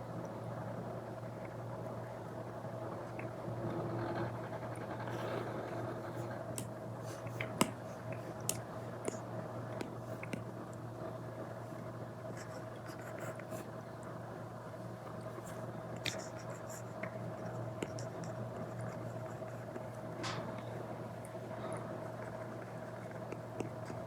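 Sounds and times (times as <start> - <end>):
stylus scratching and tapping on screen: 15.4 - 20.1, 21.9 - 24.0.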